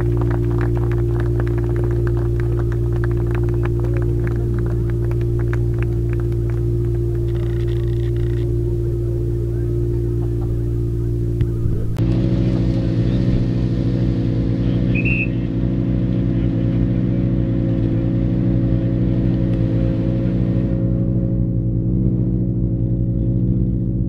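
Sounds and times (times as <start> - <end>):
car engines idling: 0.0 - 24.0
short high chirp: 14.9 - 15.4.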